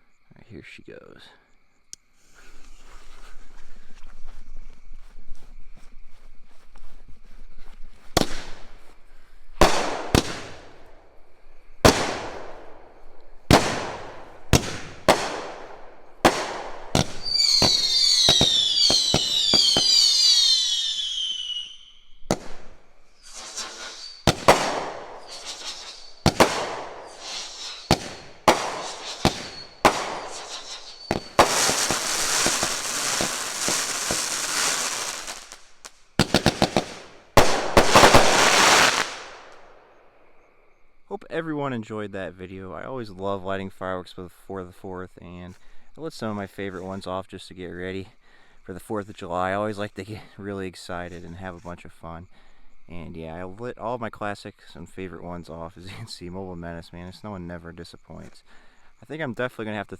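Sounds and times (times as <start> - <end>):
rapid firework popping: 8.1 - 8.7, 9.6 - 10.9, 11.8 - 21.7, 22.3 - 39.6
firework reports: 9.6 - 10.9, 11.8 - 12.7, 13.4 - 39.6
firework whistles: 9.6 - 10.9, 11.8 - 39.7.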